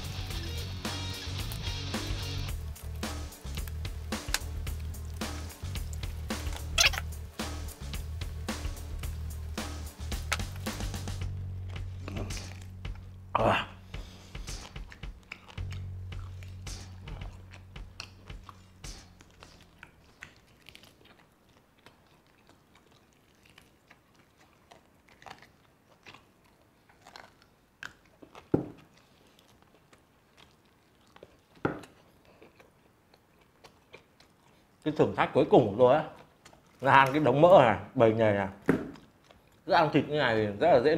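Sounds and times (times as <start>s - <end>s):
chewing clicks and soft crunches: 2.5s - 7.1s, 14.4s - 37.4s, 38.9s - 39.7s.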